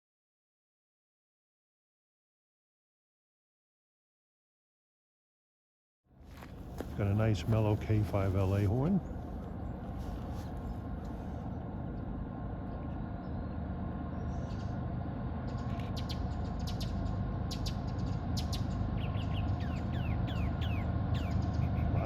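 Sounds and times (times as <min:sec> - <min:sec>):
train wheels rumbling on rail: 0:06.2 - 0:22.0
bird chirps: 0:12.6 - 0:14.8, 0:15.5 - 0:22.0.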